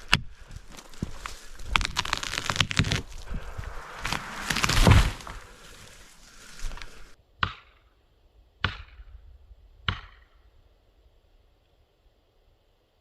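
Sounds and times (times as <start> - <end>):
crashing and rustling: 0.0 - 7.2.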